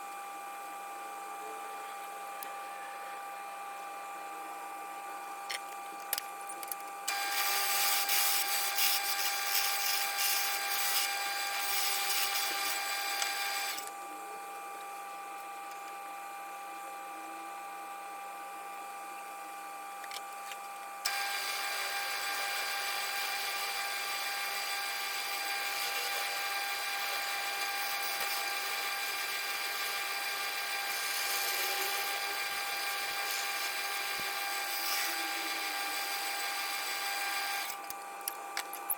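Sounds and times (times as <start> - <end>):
turning tool cutting wood: 7.1 - 14.0, 21.1 - 37.9
lathe motor hum: 21.1 - 37.8.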